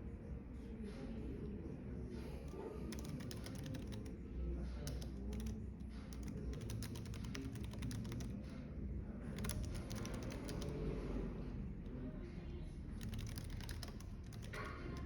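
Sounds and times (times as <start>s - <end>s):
keyboard typing: 2.5s - 8.6s, 9.3s - 11.1s, 12.9s - 15.0s.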